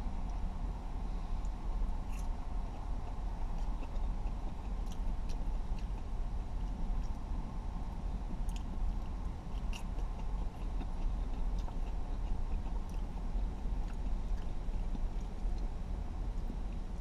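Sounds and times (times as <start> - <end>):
low hum inside car: 0.0 - 17.0
person chewing crispy food: 1.4 - 7.3, 8.0 - 17.0.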